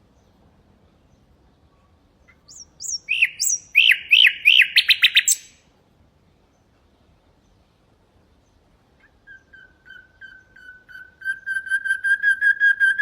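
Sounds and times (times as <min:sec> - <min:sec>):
nightingale singing: 0:02.2 - 0:05.6.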